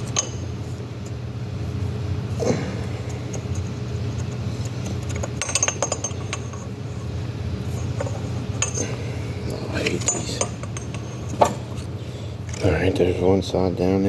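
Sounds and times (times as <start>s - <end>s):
steady low hum: 0.0s - 14.0s
metal parts clinking: 3.3s - 6.7s, 7.7s - 9.0s, 9.7s - 11.8s.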